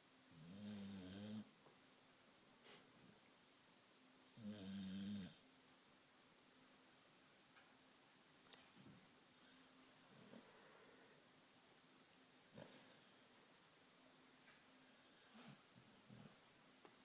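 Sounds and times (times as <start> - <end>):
dog snoring: 0.3 - 1.5, 4.4 - 5.4, 12.5 - 13.0, 14.8 - 16.6.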